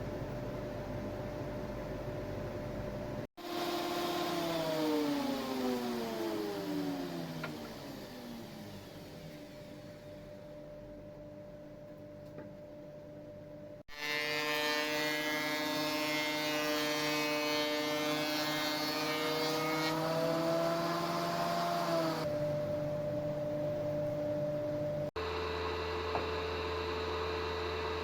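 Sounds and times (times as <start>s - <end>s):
faint hum: 22.3s - 28.0s.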